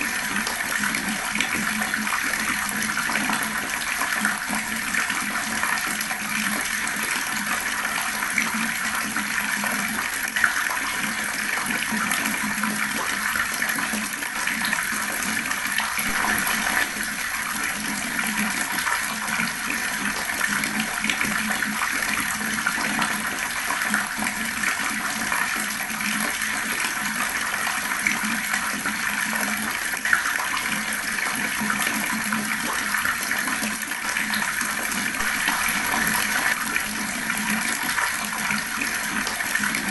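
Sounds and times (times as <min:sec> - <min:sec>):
water rushing: 0:15.8 - 0:20.1, 0:35.2 - 0:38.8.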